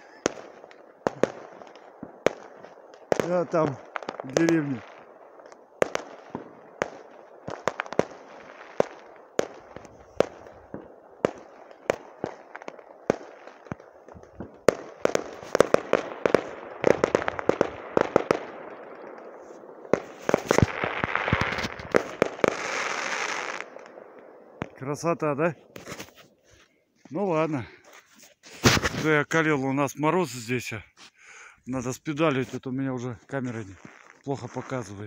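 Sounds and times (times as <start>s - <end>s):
fireworks banging and crackling: 0.0s - 26.3s, 28.5s - 29.6s.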